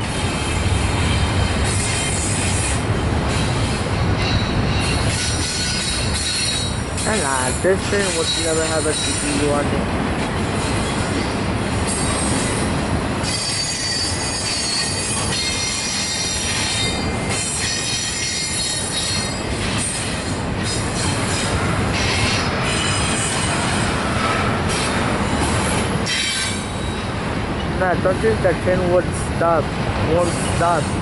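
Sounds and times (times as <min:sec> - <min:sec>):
freight train wheels rumbling: 0:00.0 - 0:31.0
high-pitched wheel squeals: 0:04.2 - 0:06.8, 0:13.2 - 0:23.9, 0:25.3 - 0:27.1.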